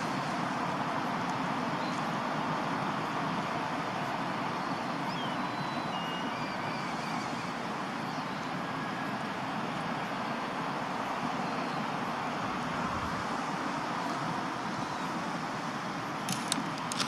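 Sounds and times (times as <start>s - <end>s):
road traffic noise: 0.0s - 17.0s
faint high chirps: 4.6s - 9.1s.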